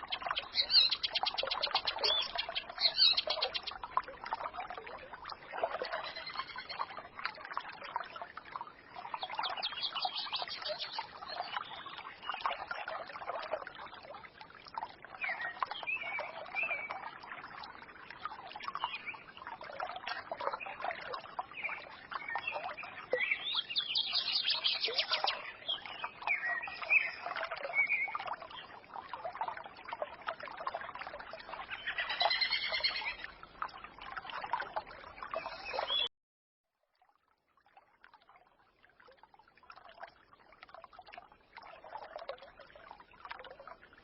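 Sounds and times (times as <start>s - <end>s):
birds twittering and singing: 0.0s - 3.8s, 5.8s - 6.9s, 9.1s - 12.7s, 21.5s - 28.1s, 31.6s - 33.2s, 35.3s - 36.1s
stream trickling and burbling: 0.0s - 36.1s, 36.7s - 44.0s.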